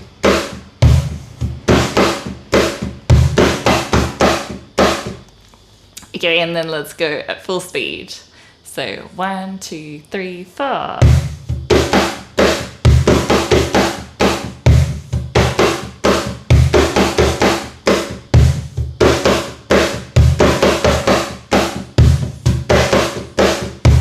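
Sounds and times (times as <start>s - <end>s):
cajon rhythm: 0.0s - 5.3s, 10.8s - 24.0s.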